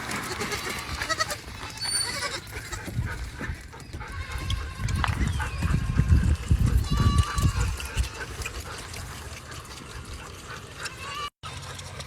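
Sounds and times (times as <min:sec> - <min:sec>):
goats bleating: 0:00.0 - 0:02.9, 0:04.0 - 0:08.5, 0:10.8 - 0:11.7.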